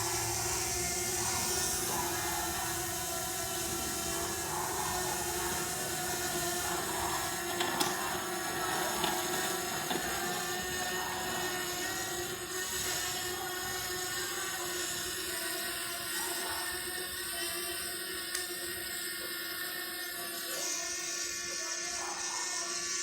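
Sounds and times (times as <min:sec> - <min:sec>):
drone propellers whining: 0:00.0 - 0:17.8.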